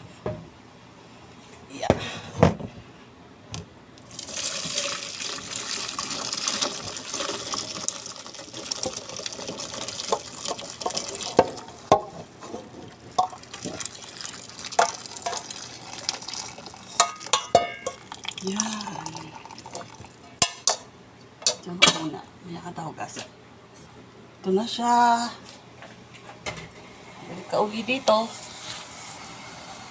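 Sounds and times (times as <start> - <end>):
broth pouring through strainer: 4.1 - 11.9, 13.1 - 20.2
pot and strainer clinking: 14.7 - 15.6, 16.8 - 18.3.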